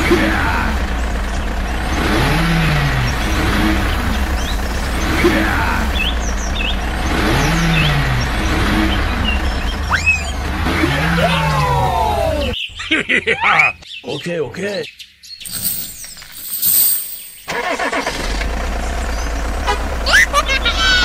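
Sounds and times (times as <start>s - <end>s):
tractor engine rumble: 0.0s - 10.7s, 15.4s - 21.0s
birds chirping: 3.0s - 5.2s, 5.8s - 10.5s, 11.5s - 17.6s.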